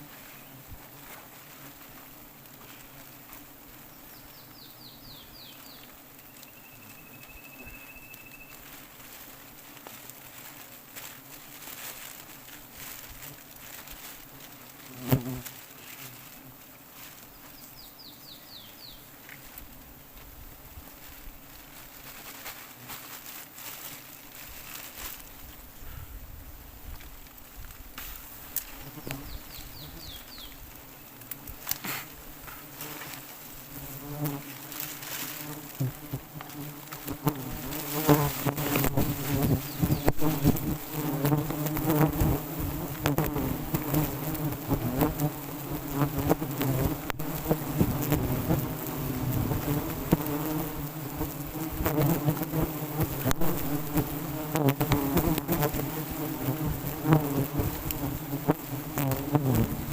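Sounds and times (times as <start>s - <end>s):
bees buzzing: 28.2s - 59.9s.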